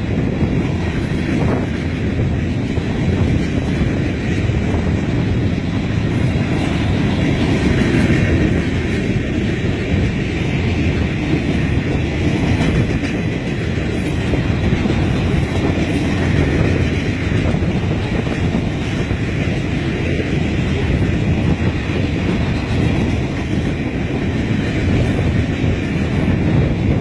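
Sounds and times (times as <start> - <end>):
freight train wheels rumbling: 0.0 - 27.0.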